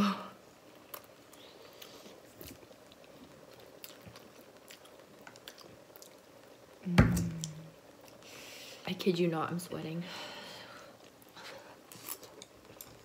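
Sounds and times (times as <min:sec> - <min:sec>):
person chewing noodles: 0:00.8 - 0:06.6.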